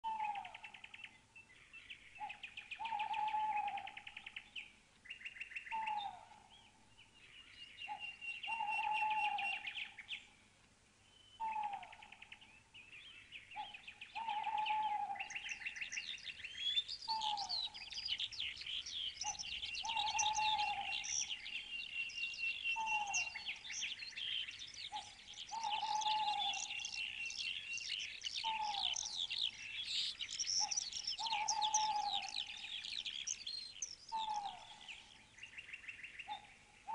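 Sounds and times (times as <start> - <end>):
birds chirping and twittering: 0.0 - 36.9
low falling bird call: 11.0 - 36.9.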